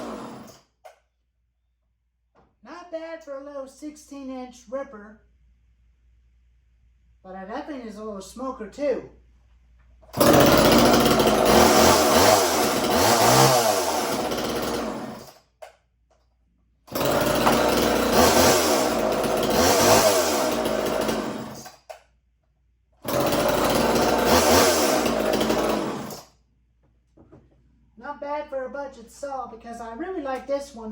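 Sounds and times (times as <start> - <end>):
chainsaw revving: 0.0 - 0.6, 10.1 - 15.4, 16.9 - 21.8, 23.0 - 26.3.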